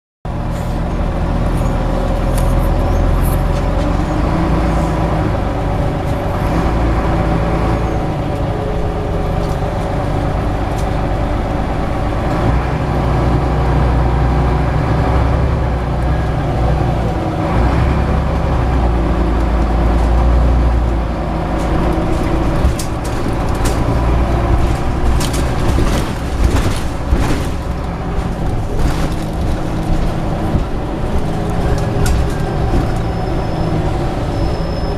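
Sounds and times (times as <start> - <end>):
bus engine running: 0.3 - 34.9
sharp clicks and rattles: 21.6 - 33.1.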